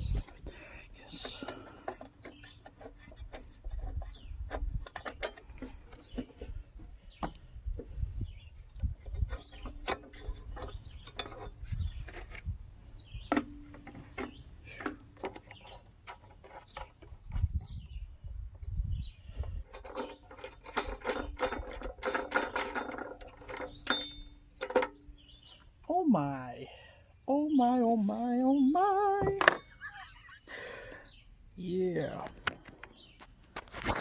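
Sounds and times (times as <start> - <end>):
tools and metal parts clicking: 4.8 - 6.3, 9.1 - 12.3, 19.6 - 25.1.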